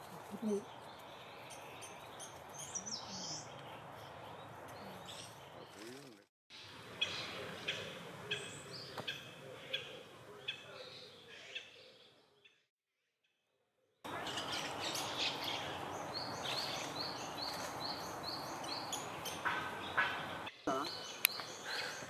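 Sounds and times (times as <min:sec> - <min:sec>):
birds chirping: 0:00.0 - 0:12.7, 0:14.0 - 0:22.0.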